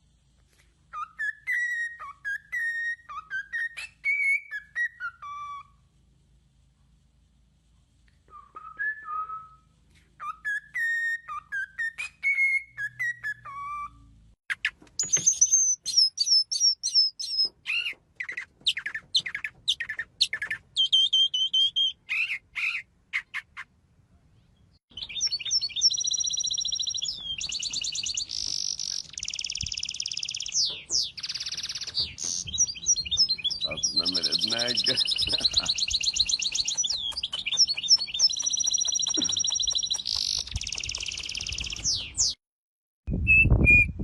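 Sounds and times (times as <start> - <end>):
birds whistling: 0.9 - 5.8, 8.3 - 23.7, 24.9 - 42.4
bird chirps and trills: 10.2 - 23.7, 24.9 - 42.4.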